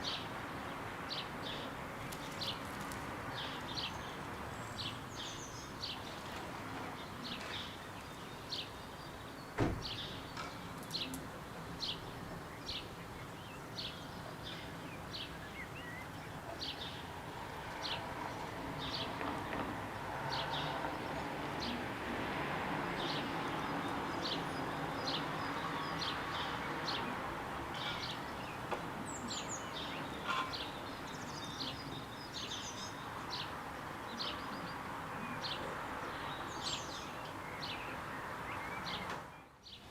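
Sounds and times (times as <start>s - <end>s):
sharp knock: 9.6s - 9.9s.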